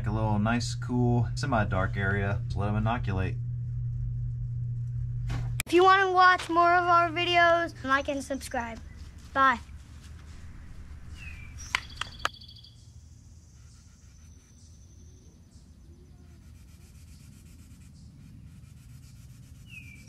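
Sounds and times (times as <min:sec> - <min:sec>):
steady low hum: 0:00.0 - 0:20.0
bird whistle and trill: 0:11.1 - 0:12.9, 0:19.6 - 0:20.0
sharp clicks: 0:11.6 - 0:12.4.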